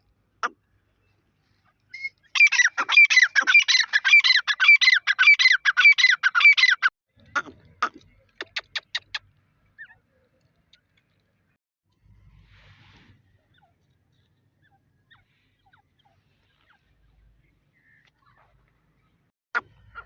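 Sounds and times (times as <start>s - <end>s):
partridge calling: 1.9s - 10.0s.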